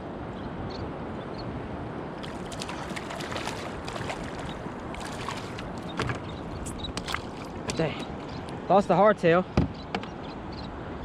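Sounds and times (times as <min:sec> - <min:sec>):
wind: 0:00.0 - 0:11.0
water splashing against kayak hull: 0:02.2 - 0:07.9.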